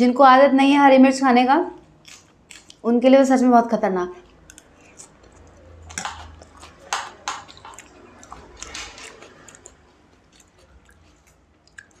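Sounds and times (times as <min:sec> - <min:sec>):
person chewing food wetly: 0:01.8 - 0:02.8, 0:04.2 - 0:12.0.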